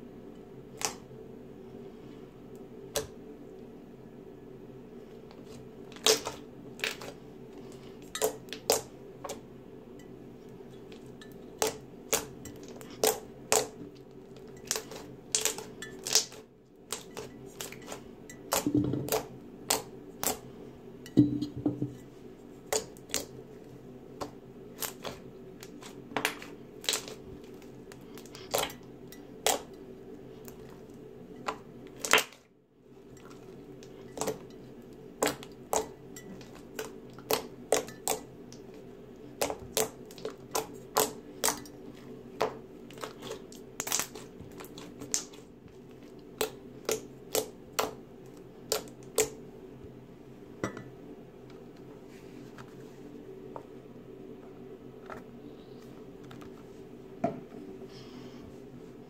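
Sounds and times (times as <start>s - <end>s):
faint steady hum: 0.0s - 59.0s
slime clicking and popping: 43.8s - 45.3s.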